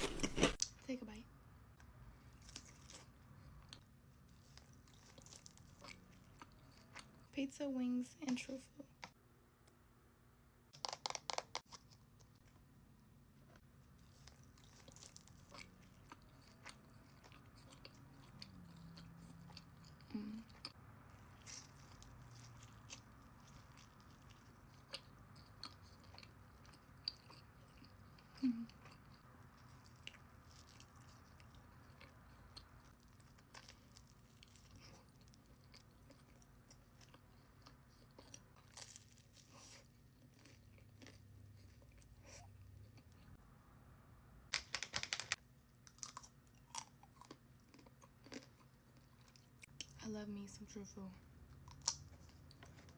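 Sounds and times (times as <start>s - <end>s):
person biting and chewing food: 0.0s - 0.7s, 45.8s - 49.8s, 51.6s - 52.9s
small crunches and clicks: 0.0s - 0.7s, 44.5s - 48.6s.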